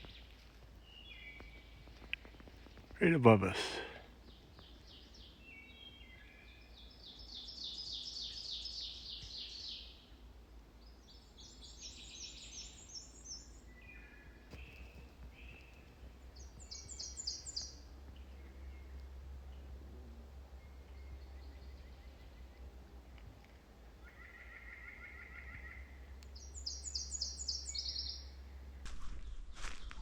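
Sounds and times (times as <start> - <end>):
songbirds singing softly: 0.0 - 28.8
warbler singing high thin song: 4.3 - 10.1, 10.8 - 19.0, 24.1 - 28.4.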